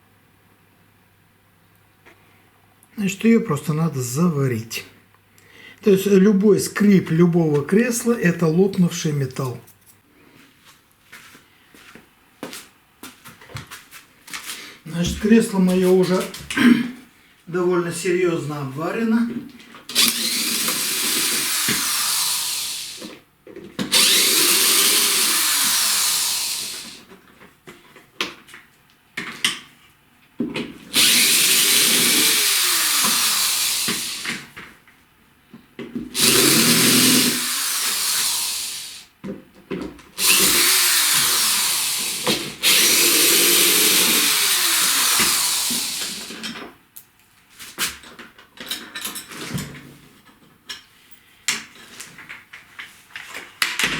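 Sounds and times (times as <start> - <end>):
power drill running: 19.9 - 23.1, 23.9 - 27.0, 30.9 - 34.4, 36.2 - 39.1, 40.2 - 46.4.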